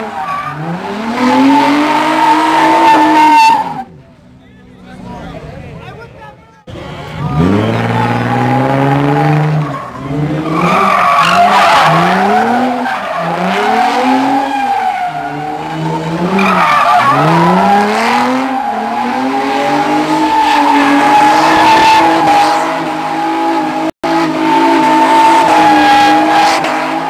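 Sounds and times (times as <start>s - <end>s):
car engine revving: 0.0s - 4.0s, 6.7s - 27.0s
tyres squealing: 7.2s - 23.3s.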